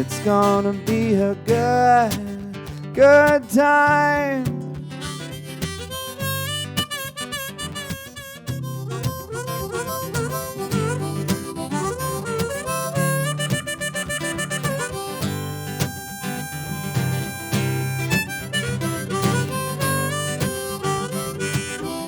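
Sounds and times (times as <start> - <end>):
strummed acoustic guitar: 0.0 - 22.0
harmonica fast run: 4.9 - 22.0.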